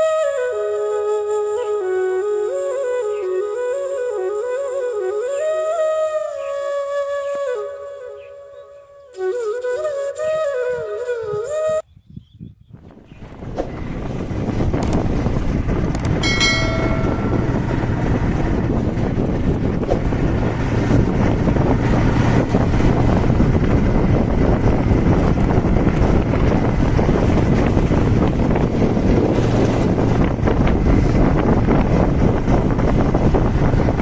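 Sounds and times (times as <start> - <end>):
wind buffeting microphone: 9.2 - 34.0
low rumble: 13.2 - 34.0
short pitched tone: 16.2 - 18.1.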